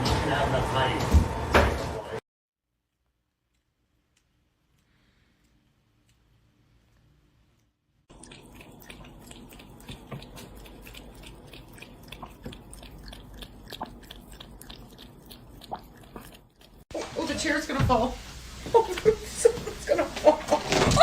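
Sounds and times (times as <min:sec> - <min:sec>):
chewing crisp crunches: 0:07.0 - 0:16.8.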